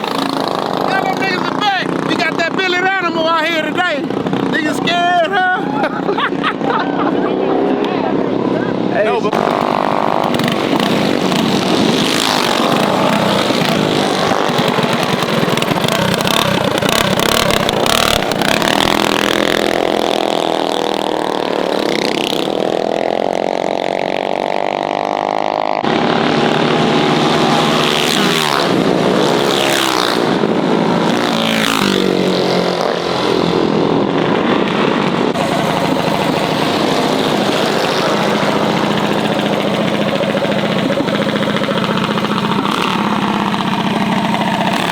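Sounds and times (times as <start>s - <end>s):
mini bike engines revving: 0.0s - 44.9s.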